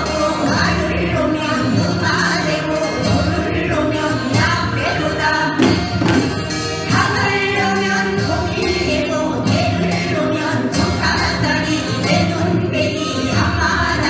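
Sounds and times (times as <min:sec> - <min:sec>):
folk music with singing: 0:00.0 - 0:14.0
percussion strikes: 0:05.6 - 0:07.2.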